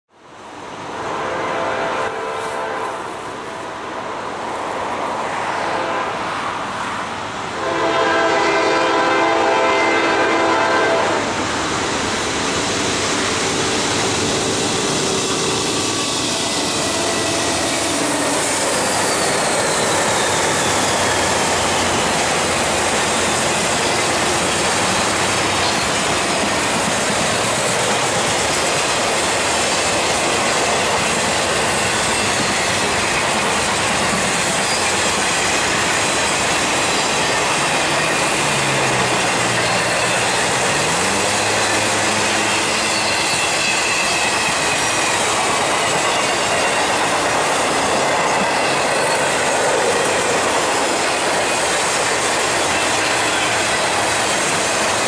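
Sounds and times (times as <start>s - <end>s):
freight train passing: 0.1s - 55.0s
train horn blast: 1.0s - 3.3s, 5.6s - 6.4s, 7.6s - 11.3s, 40.1s - 44.0s.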